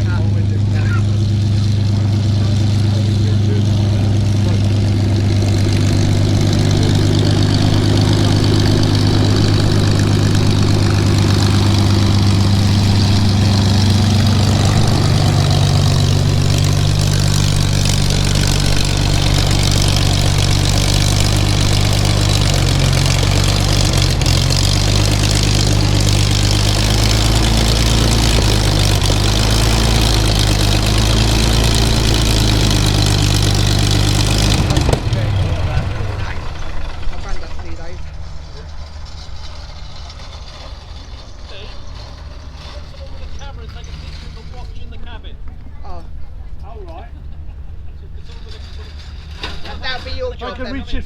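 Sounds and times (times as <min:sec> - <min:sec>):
propeller plane engine drone: 0:00.0 - 0:50.7.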